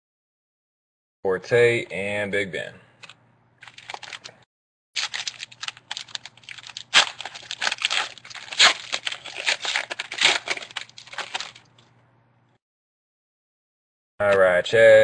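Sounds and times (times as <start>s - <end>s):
wrapper crinkling and tearing: 3.6s - 4.4s, 5.0s - 11.8s.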